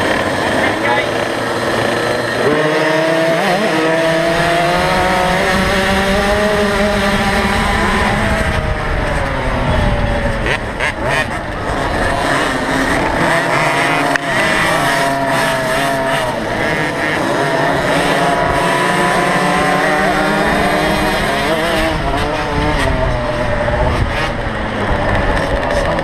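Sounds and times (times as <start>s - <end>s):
motocross bike engines racing: 0.0s - 26.0s.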